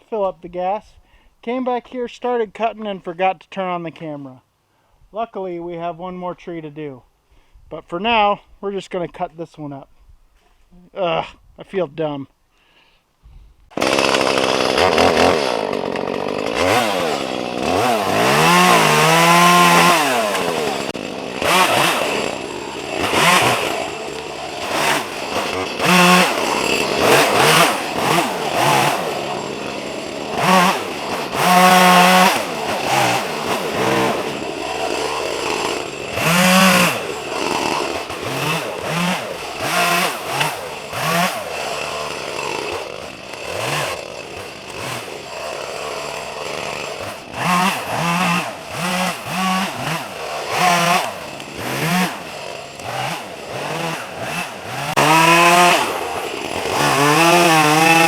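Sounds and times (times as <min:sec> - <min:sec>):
chainsaw revving: 0:13.7 - 0:58.0.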